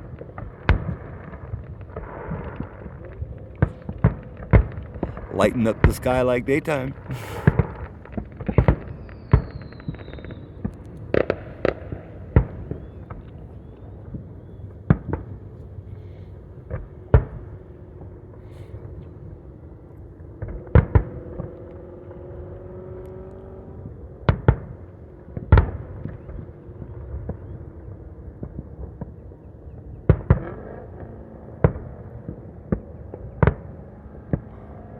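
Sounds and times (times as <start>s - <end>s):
distant fireworks rumble: 0.0s - 34.9s.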